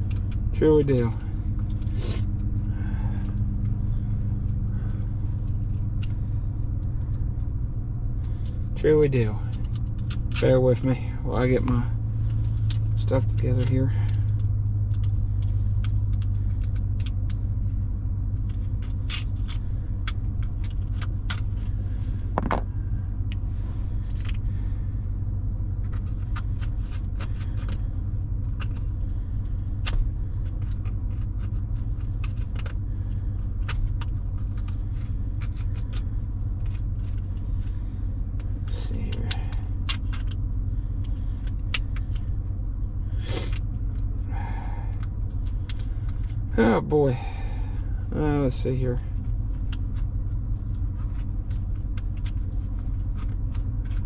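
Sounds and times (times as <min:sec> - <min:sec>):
truck engine idling: 0:00.0 - 0:54.0
clicks and knocks of handling: 0:08.2 - 0:10.8, 0:11.5 - 0:23.4, 0:25.3 - 0:44.2, 0:48.5 - 0:54.0.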